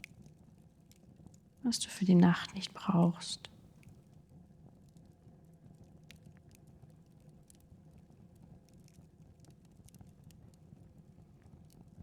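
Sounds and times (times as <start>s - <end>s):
low steady hum: 1.7s - 3.5s.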